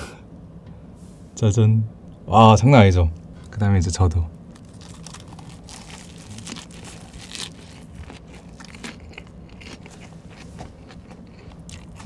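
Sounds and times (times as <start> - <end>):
wet crunchy chewing: 4.5 - 12.0.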